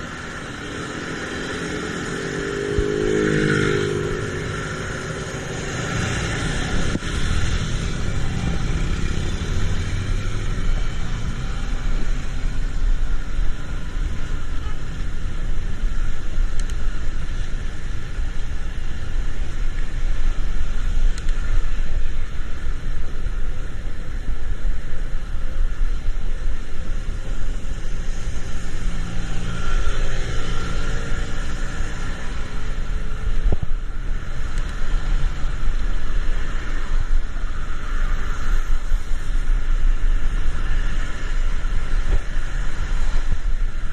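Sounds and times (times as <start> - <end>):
car rumbling in traffic: 0.0 - 43.9.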